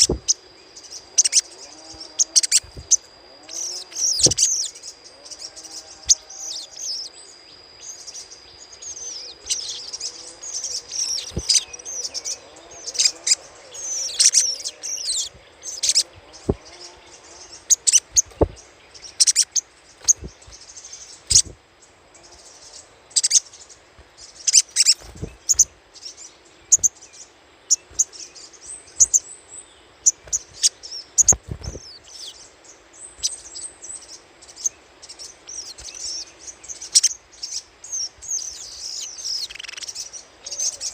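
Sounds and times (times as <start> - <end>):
bird chattering call: 1.1 - 4.8.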